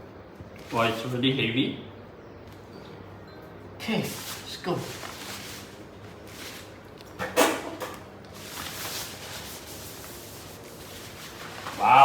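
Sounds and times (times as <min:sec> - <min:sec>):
packaging rustling and scraping: 0:08.2 - 0:11.8
person grunting with effort: 0:11.8 - 0:12.0.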